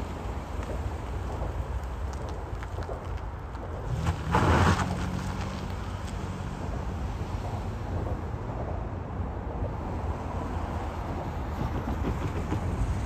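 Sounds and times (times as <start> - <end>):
diesel train rumbling: 6.4 - 13.0.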